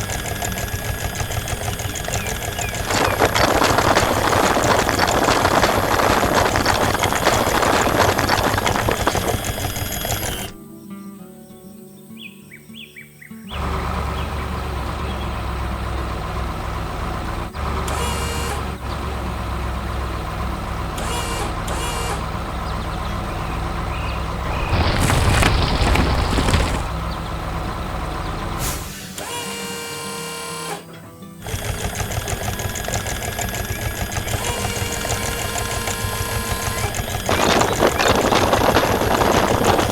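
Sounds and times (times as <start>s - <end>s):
fast rattling: 0.0s - 10.6s, 24.4s - 27.1s, 31.4s - 39.9s
loud noisy burst: 0.0s - 10.6s, 24.5s - 27.0s, 31.4s - 39.9s
machinery engine rumble: 0.0s - 10.6s, 22.3s - 28.8s, 31.4s - 39.9s.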